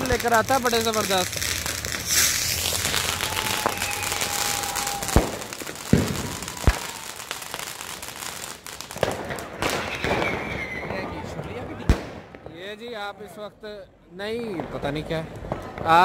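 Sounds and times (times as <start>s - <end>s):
spark fountain crackling hiss: 0.0s - 9.0s
firecracker bangs: 0.0s - 12.6s
firework whistle: 1.5s - 7.8s, 9.7s - 11.1s.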